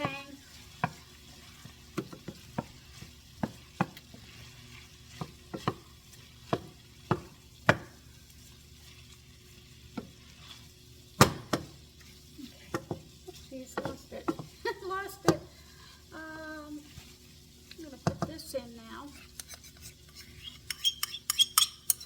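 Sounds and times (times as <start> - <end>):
utensil scraping a frying pan: 0.0 - 11.2, 19.0 - 22.0
faint sizzle: 0.0 - 22.0.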